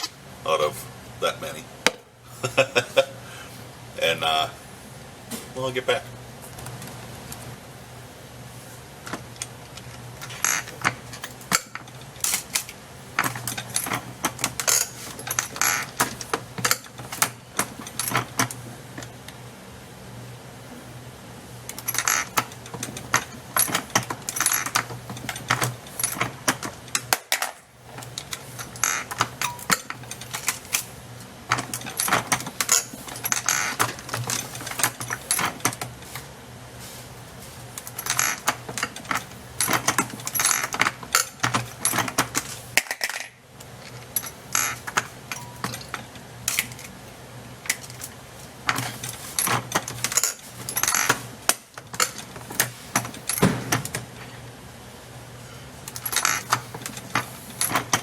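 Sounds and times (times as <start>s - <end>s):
brass cases clinking: 10.2s - 18.6s, 21.8s - 30.9s, 31.5s - 36.0s, 44.0s - 46.9s.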